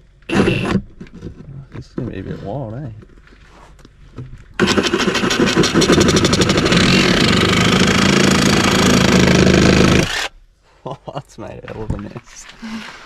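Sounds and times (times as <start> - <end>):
electric power tool cutting: 0.3 - 0.7, 4.6 - 10.3.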